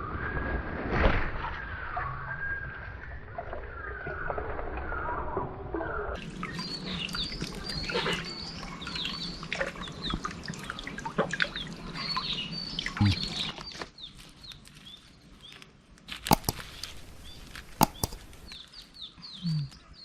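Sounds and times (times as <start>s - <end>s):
small birds chirping: 6.2s - 10.9s, 11.5s - 20.0s
small clicks: 15.6s - 18.6s
sharp knocks: 16.3s - 16.6s, 17.8s - 18.3s.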